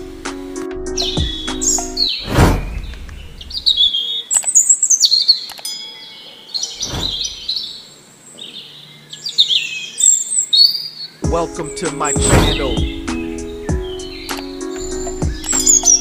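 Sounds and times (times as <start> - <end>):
songbirds chirping: 0.0 - 16.0
short whoosh: 2.2 - 3.8, 6.8 - 7.5.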